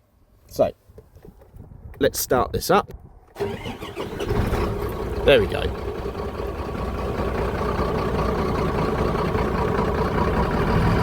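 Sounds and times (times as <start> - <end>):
diesel engine idling with misfire: 3.4 - 11.0.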